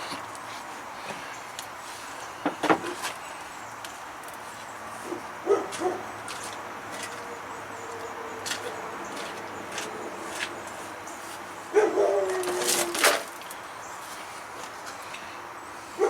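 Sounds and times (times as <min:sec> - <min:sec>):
dog yipping: 0:05.5 - 0:06.0, 0:11.7 - 0:12.8.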